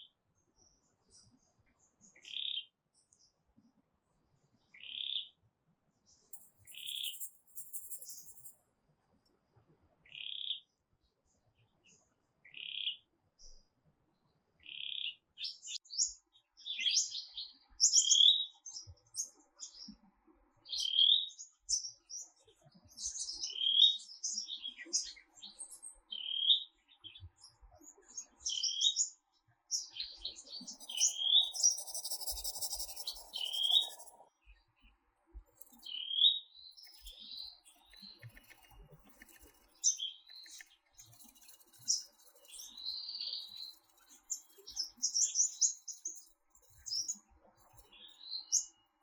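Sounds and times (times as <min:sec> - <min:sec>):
birds chirping: 0:06.4 - 0:08.5, 0:29.7 - 0:34.2, 0:35.4 - 0:48.7.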